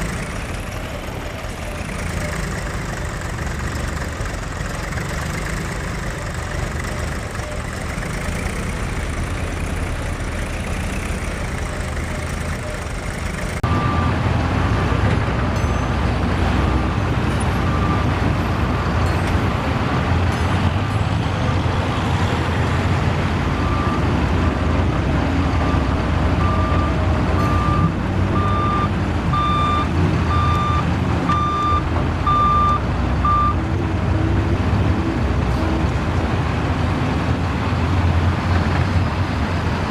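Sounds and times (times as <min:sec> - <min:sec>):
diesel engines running: 0:00.0 - 0:39.9
reversing alarm beeping: 0:25.6 - 0:33.6.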